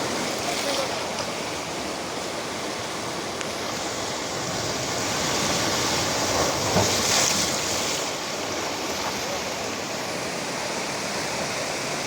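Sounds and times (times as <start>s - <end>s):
ocean waves rushing: 0.0s - 12.0s.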